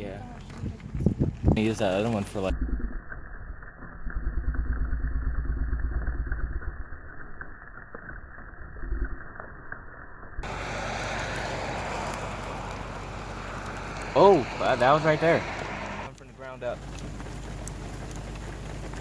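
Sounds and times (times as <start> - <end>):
steady hiss: 10.4 - 19.0
vehicle engine rumbling: 10.4 - 19.0.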